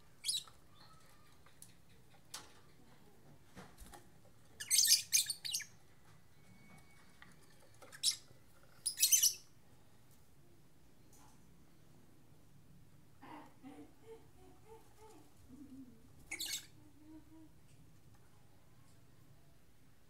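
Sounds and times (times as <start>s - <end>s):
lovebirds chirping shrilly: 4.6s - 5.7s, 8.8s - 9.4s.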